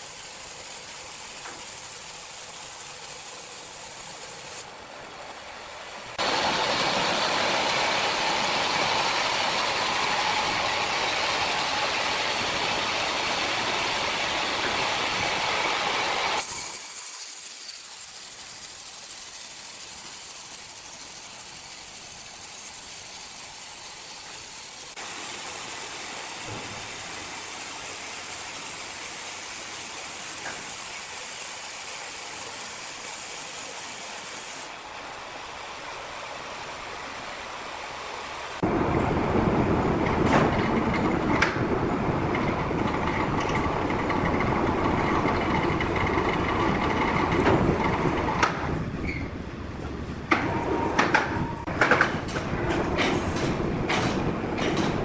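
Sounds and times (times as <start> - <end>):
sawmill machinery running: 0.0 - 55.0.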